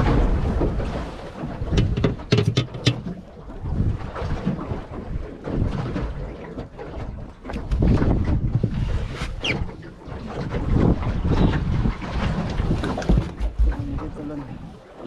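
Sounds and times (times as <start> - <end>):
knocks on boat: 0.0 - 3.2, 10.7 - 14.2
wind buffeting microphone: 0.0 - 14.9.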